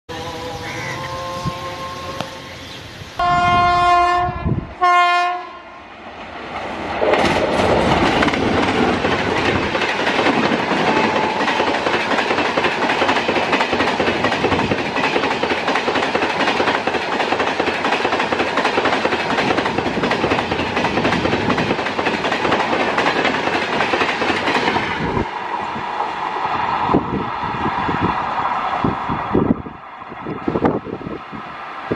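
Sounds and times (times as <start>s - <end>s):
locomotive horn blasts: 0.1s - 2.5s, 3.2s - 5.7s
train rushing past: 0.1s - 31.9s
wheels clattering over rail joints: 6.6s - 25.0s.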